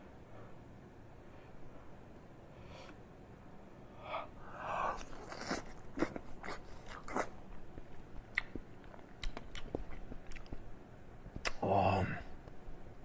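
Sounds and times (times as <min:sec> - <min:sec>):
person chewing: 0:04.6 - 0:10.7
wet mouth sounds: 0:04.8 - 0:10.6, 0:11.4 - 0:11.6.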